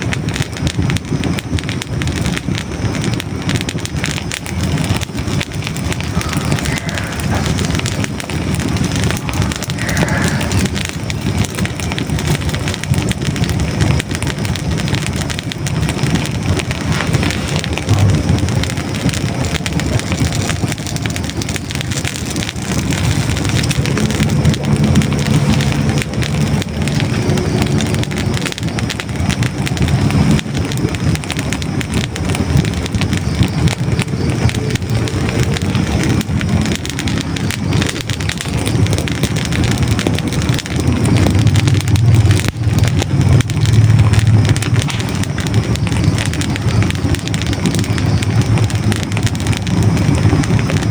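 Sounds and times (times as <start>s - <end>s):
faint steady tones: 0.0s - 50.9s
fire crackling and popping: 0.0s - 50.9s
low rumble of flames: 0.0s - 50.9s.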